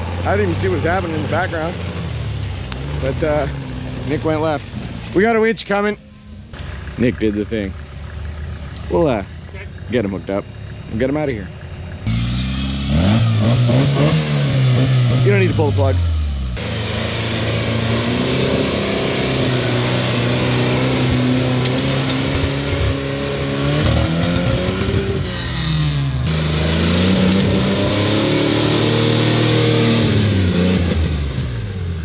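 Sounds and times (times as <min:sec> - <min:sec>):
engine working under load: 0:00.0 - 0:32.0.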